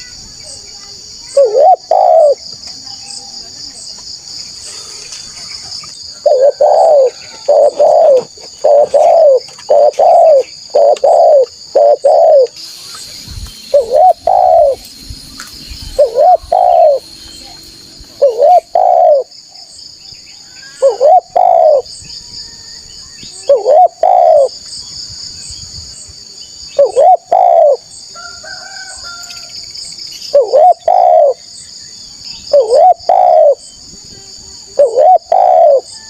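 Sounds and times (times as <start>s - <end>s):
dove cooing: 1.3s - 2.5s, 6.2s - 12.6s, 13.7s - 14.8s, 15.9s - 17.1s, 18.2s - 19.4s, 20.8s - 21.9s, 23.4s - 24.5s, 26.8s - 27.9s, 30.3s - 31.4s, 32.5s - 33.6s, 34.7s - 36.0s.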